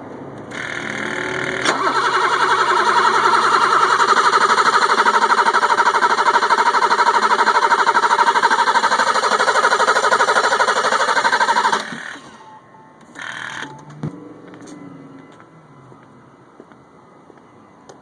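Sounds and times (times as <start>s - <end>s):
engine cranking on starter: 0.4s - 12.5s, 13.1s - 13.8s.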